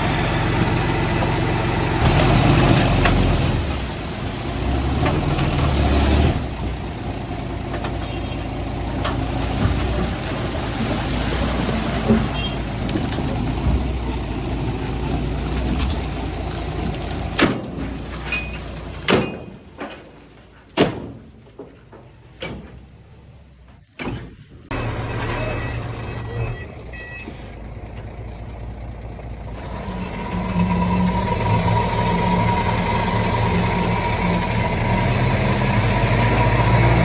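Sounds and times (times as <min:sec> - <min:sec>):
heavy diesel machinery running: 0:00.0 - 0:19.7, 0:24.5 - 0:37.0
sharp metallic clanks: 0:17.4 - 0:20.1.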